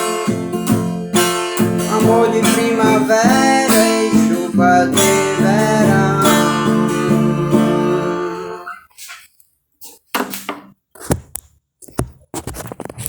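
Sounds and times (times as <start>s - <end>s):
acoustic guitar strumming: 0.0s - 8.8s.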